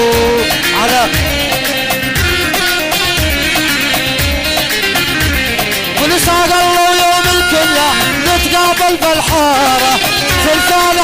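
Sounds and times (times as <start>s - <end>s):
person singing: 0.0s - 1.8s, 6.0s - 11.0s
drum machine beat: 0.0s - 11.0s
electronic keyboard melody: 0.0s - 11.0s.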